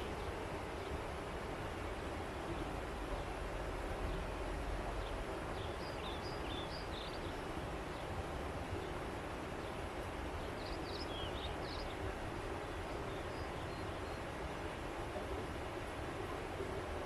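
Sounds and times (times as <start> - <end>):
river flowing: 0.0 - 17.0
small birds chirping: 5.0 - 8.0, 10.4 - 12.0.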